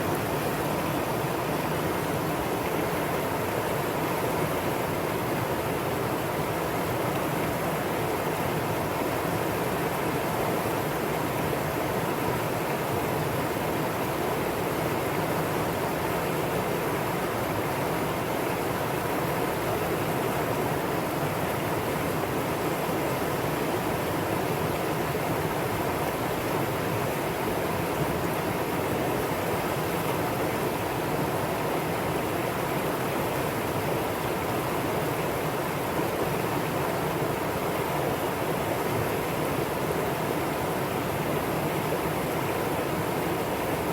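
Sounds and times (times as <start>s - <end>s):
stream water rushing over rocks: 0.0s - 43.9s.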